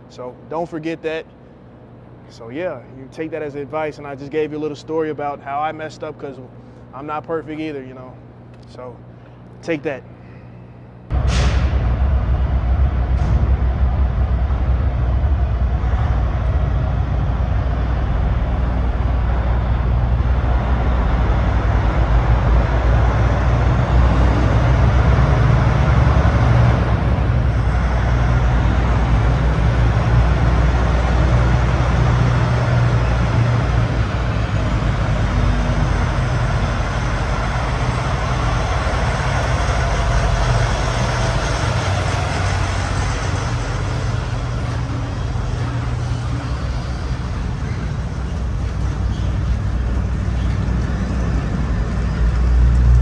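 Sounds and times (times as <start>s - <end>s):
diesel truck engine drone: 6.0s - 53.0s
tyre and road noise: 11.1s - 53.0s.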